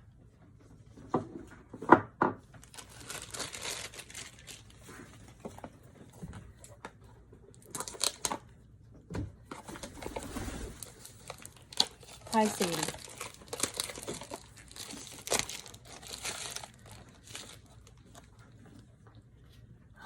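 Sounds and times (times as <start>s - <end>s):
packaging crinkling and tearing: 2.6s - 5.7s, 7.6s - 8.5s, 9.6s - 18.3s.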